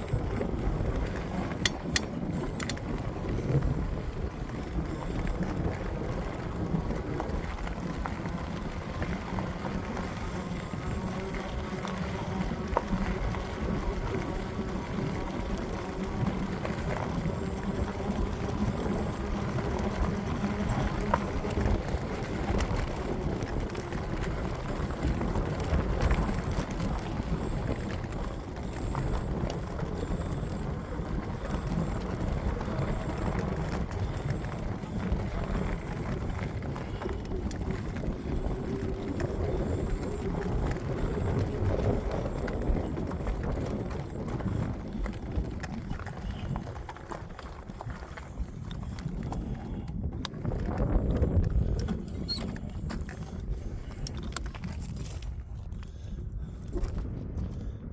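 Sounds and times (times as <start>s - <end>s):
rolling road noise: 0.0s - 57.8s
wind rumble on microphone: 0.0s - 57.9s.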